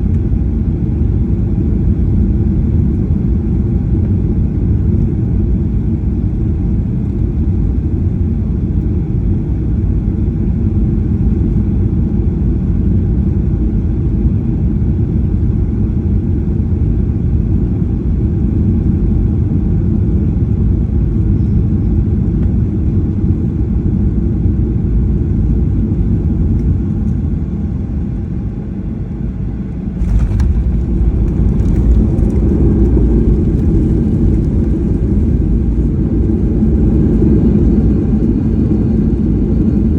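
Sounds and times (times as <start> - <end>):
jet engines rumbling in cabin: 0.0 - 39.9
airflow: 28.2 - 39.2.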